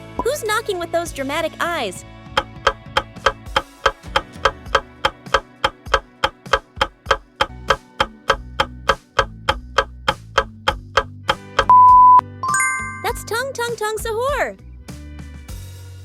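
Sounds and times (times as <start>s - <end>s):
background music: 0.0s - 16.0s
clock-like ticking: 2.4s - 11.7s.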